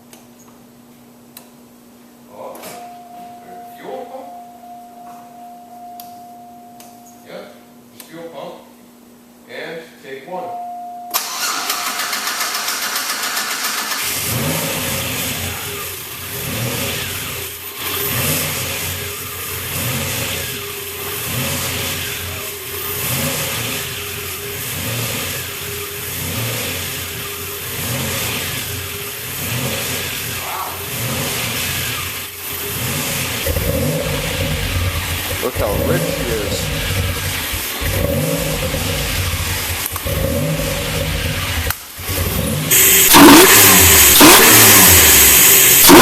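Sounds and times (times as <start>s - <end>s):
car engine idling unevenly: 11.2s - 46.0s.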